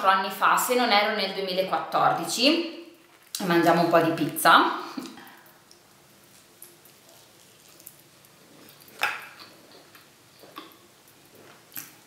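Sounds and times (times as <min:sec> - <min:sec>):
person chewing food: 0:05.1 - 0:12.0.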